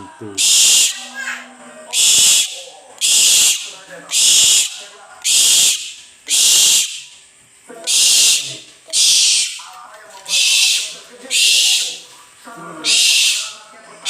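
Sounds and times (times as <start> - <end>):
owl hissing calls: 0.4 - 7.2, 7.9 - 9.6, 10.3 - 12.0, 12.8 - 13.6.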